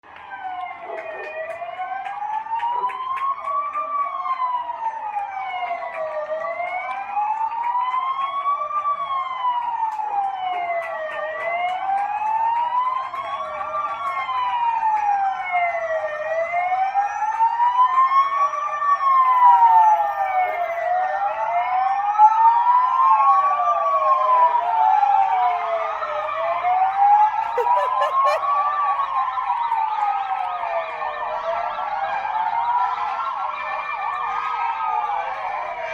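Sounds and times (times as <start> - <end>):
emergency sirens wailing: 0.1 - 20.6, 23.8 - 28.4.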